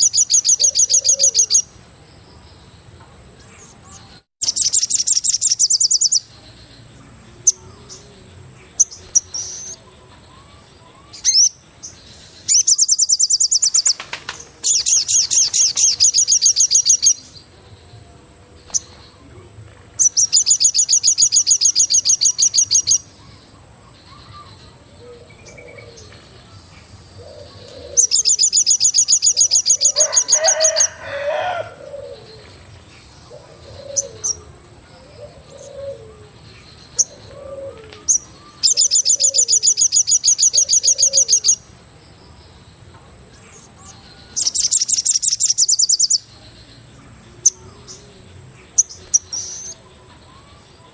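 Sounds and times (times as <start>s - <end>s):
bird rapid pulsing trill: 0.0s - 1.8s, 7.4s - 17.9s.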